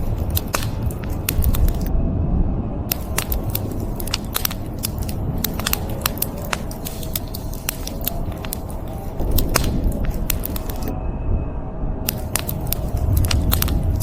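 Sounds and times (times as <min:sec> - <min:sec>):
wood fire crackling: 0:00.0 - 0:01.9, 0:02.9 - 0:10.9, 0:12.1 - 0:14.0.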